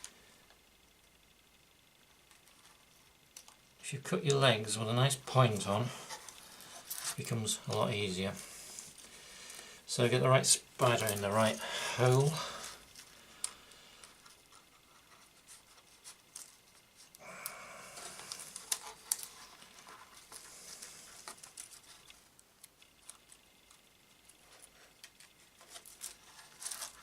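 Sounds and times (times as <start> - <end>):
plastic film crinkling and rustling: 4.2 - 17.2, 18.0 - 27.0.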